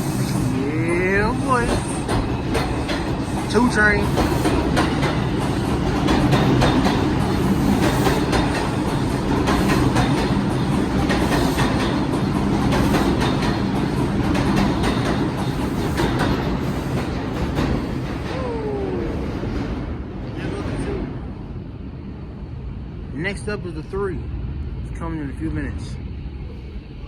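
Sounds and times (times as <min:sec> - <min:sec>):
subway train rumbling: 0:00.0 - 0:27.0
wheels clicking over rail joints: 0:01.3 - 0:18.4.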